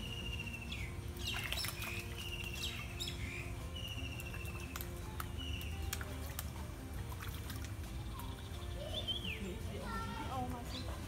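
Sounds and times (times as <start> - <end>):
bird call with trill: 0.0 - 4.7, 8.1 - 9.4.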